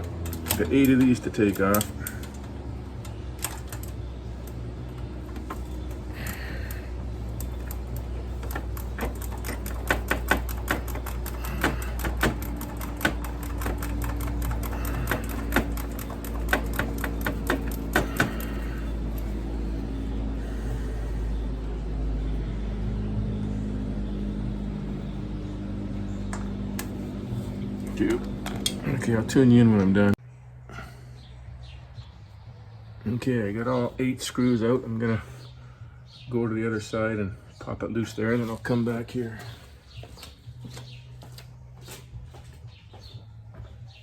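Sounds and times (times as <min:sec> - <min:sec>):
steady low hum: 0:00.0 - 0:43.9
ratchet wrench clicking: 0:07.2 - 0:19.3.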